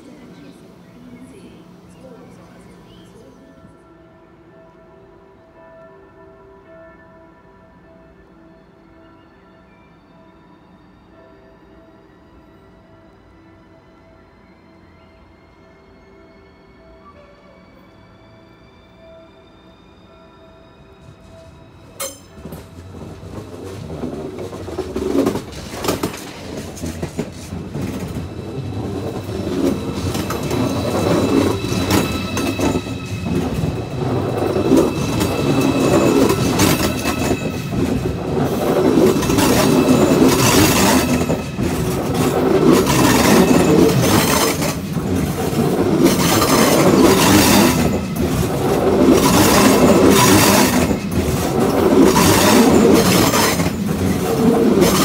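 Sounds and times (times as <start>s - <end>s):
train wheels clacking over rail joints: 22.0s - 55.0s.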